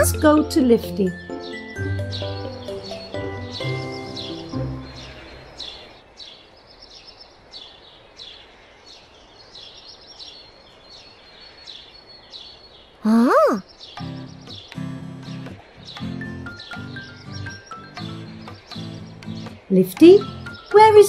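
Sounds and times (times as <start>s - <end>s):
swooping cry: 13.0s - 13.6s
cartoon bird chirps: 13.0s - 13.7s.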